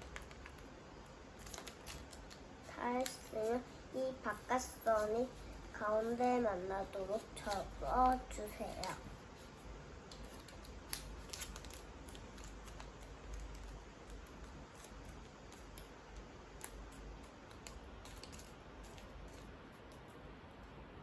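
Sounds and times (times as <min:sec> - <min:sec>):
paper crinkling: 0:00.0 - 0:03.6, 0:07.0 - 0:20.1.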